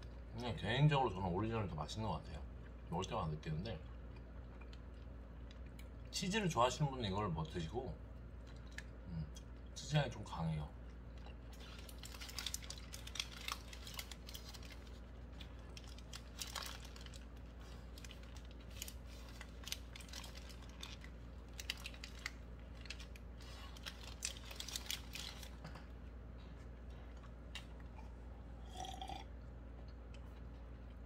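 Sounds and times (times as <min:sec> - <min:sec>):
steady low hum: 0:00.0 - 0:31.0
wet chewing and mouth smacks: 0:03.8 - 0:06.1
paper wrapper crinkling: 0:11.6 - 0:25.6.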